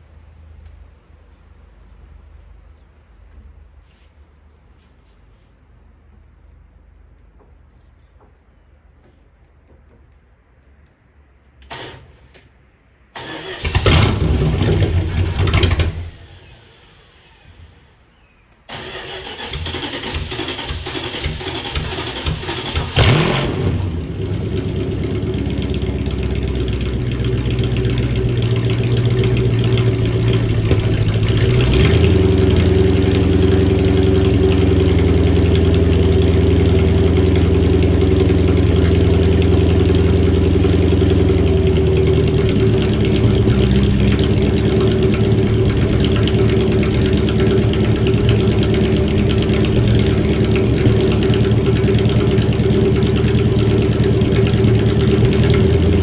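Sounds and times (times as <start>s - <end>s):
car engine idling: 13.2s - 18.0s, 18.7s - 56.0s.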